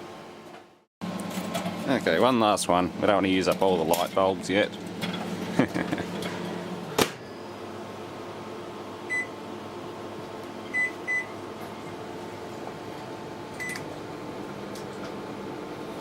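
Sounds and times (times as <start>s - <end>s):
microwave keypad beeps: 9.1s - 9.4s, 10.7s - 11.4s, 13.6s - 13.9s.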